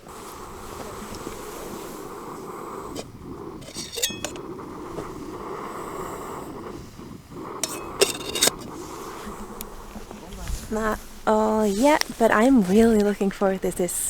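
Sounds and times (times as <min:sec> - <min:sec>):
camping stove burner running: 0:00.0 - 0:14.0
metal clinks of pot and utensils: 0:03.6 - 0:04.4.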